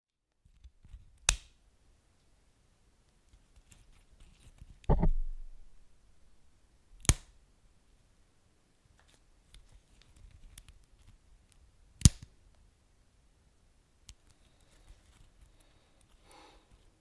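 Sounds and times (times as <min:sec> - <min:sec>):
sharp loud pop: 0:04.9 - 0:05.8.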